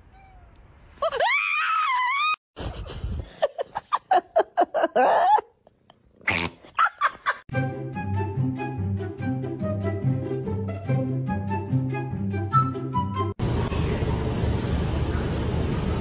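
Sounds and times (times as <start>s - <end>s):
cat meowing: 0.0s - 0.6s
background music: 7.5s - 13.4s.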